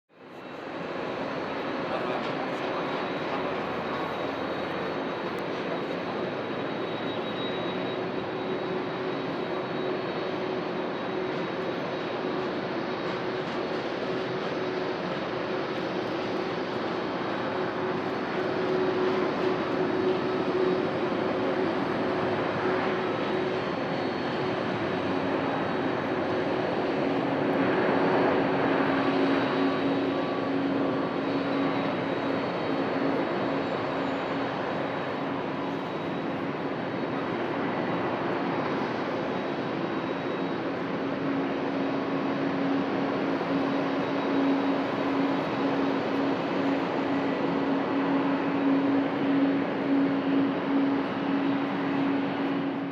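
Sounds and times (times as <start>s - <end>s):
jet engines roaring: 0.2s - 52.9s.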